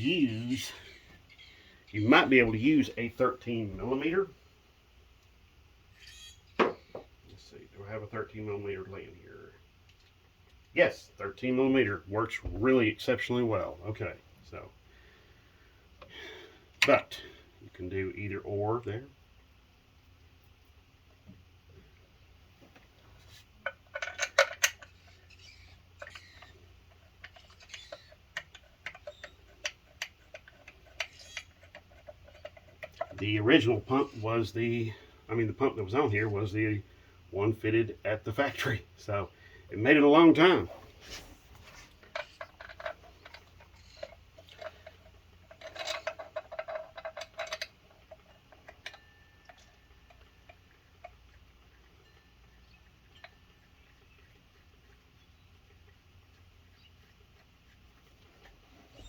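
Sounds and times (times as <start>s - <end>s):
metal tools clinking: 41.0s - 51.2s.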